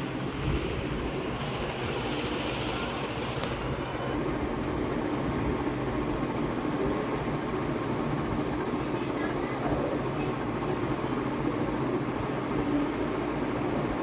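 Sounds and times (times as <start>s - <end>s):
ceiling fan air rush: 0.0s - 14.0s
faint motor hum: 0.0s - 14.0s.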